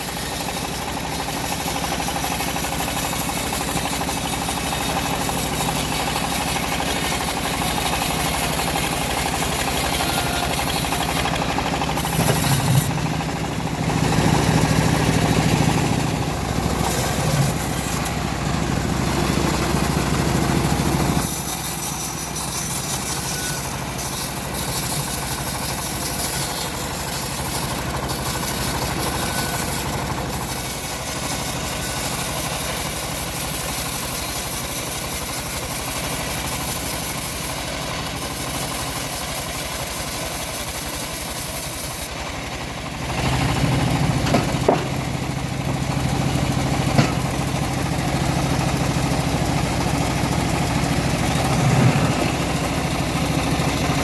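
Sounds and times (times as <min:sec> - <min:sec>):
band sawmill running: 0:00.0 - 0:54.0
sharp knocks: 0:44.2 - 0:45.0.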